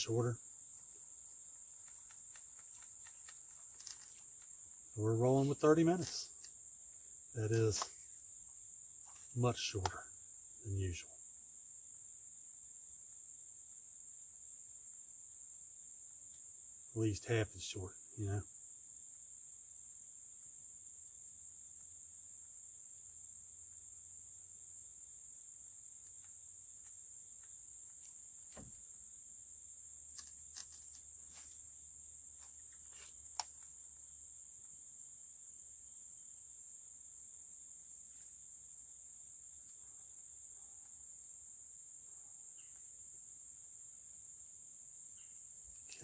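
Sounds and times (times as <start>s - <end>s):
insects chorus: 0.0s - 46.0s
faint ticks: 1.7s - 4.6s, 9.0s - 10.2s, 32.4s - 33.8s.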